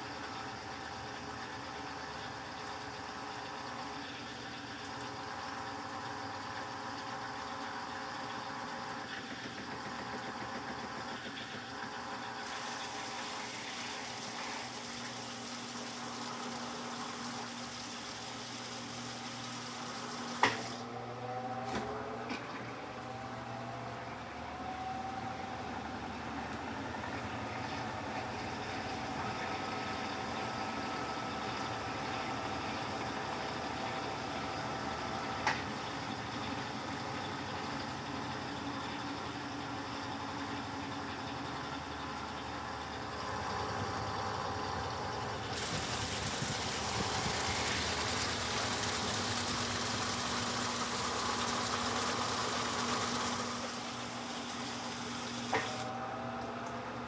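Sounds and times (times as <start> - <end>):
washing machine motor hum: 0.0 - 57.0
rising whine: 21.0 - 28.0.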